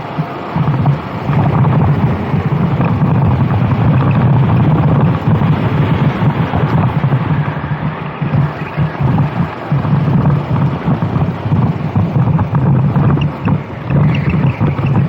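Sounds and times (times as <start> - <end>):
go-kart engine running hard: 0.0 - 15.0
wind buffeting microphone: 0.0 - 15.0.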